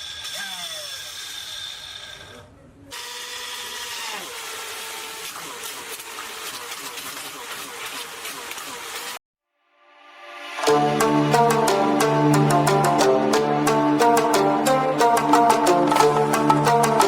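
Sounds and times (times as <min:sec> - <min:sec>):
water pump motor whining: 0:03.0 - 0:09.2.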